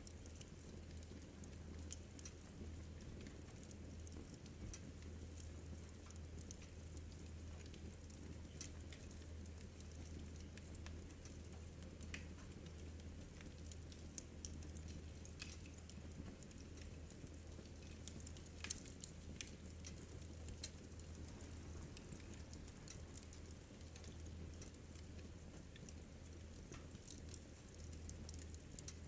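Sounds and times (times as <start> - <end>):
wood fire crackling and popping: 0.0 - 29.0
steady low hum: 15.9 - 29.0.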